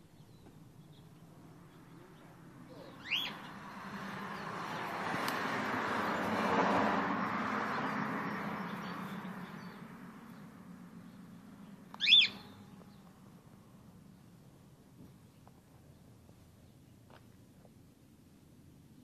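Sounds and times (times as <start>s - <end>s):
bird rising chirp: 0.0s - 5.0s, 7.7s - 13.1s.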